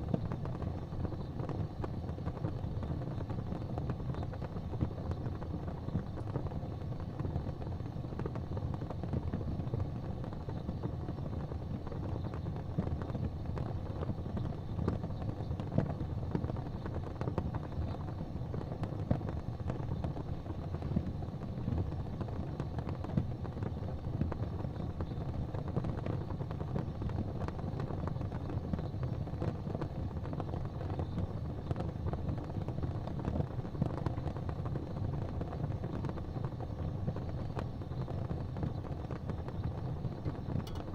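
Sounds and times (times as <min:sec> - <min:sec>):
fire crackling and popping: 0:00.0 - 0:40.9
steady low rumble: 0:35.7 - 0:40.9.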